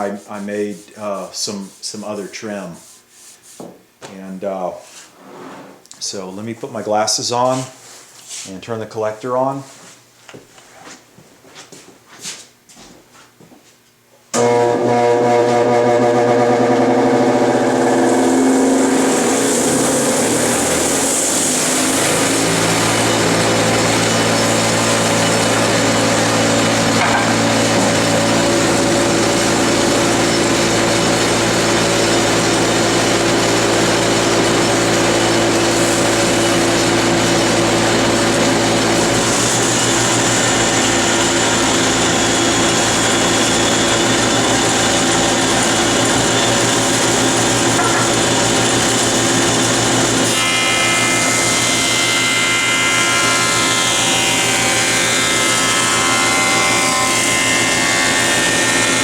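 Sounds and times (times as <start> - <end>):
jointer machine drone: 14.4 - 59.0.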